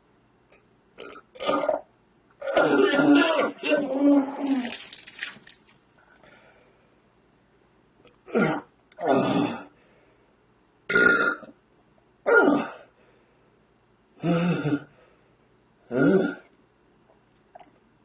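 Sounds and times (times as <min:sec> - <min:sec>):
man retching: 0:00.5 - 0:04.9, 0:08.2 - 0:09.7, 0:10.9 - 0:11.5, 0:14.2 - 0:14.9, 0:15.9 - 0:16.5.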